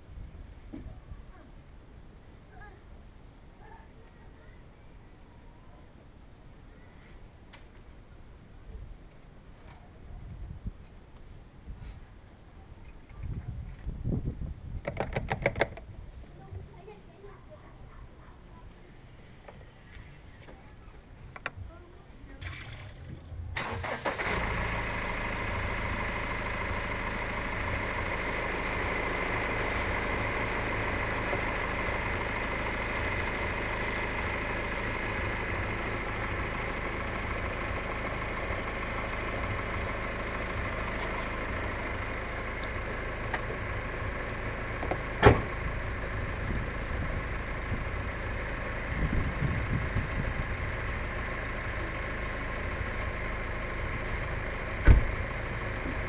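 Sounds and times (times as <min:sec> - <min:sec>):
car engine idling: 0:15.6 - 0:56.0.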